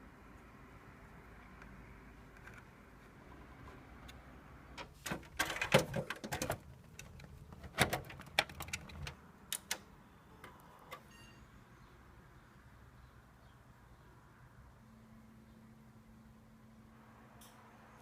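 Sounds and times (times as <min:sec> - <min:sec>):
sharp clicks and knocks: 0:04.8 - 0:11.1.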